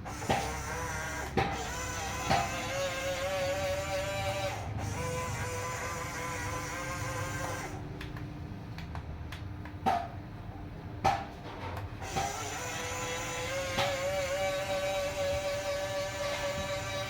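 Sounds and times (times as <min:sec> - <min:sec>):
toy electric motor whining: 0:00.0 - 0:07.8, 0:12.0 - 0:17.0
sharp plastic clicks and knocks: 0:00.2 - 0:02.8.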